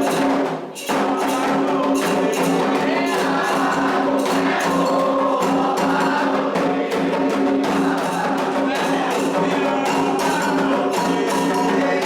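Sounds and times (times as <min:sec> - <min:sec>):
fast percussion: 0:00.0 - 0:12.0
group singing a chant: 0:00.0 - 0:12.0.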